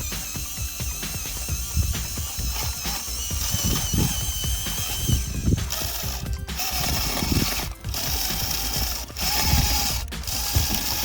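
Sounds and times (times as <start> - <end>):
gear clatter: 0.0 - 11.0
small gear motor whining: 0.0 - 11.0.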